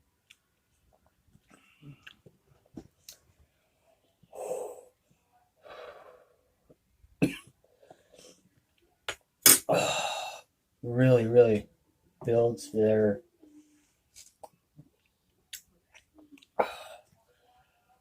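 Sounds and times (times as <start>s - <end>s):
man coughing: 7.2s - 7.5s.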